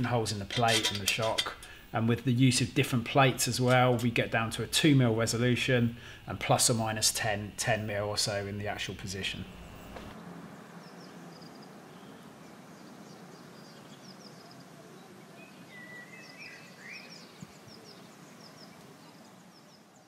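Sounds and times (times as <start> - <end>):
steady hiss: 0.0 - 20.0
small birds chirping: 10.8 - 20.0.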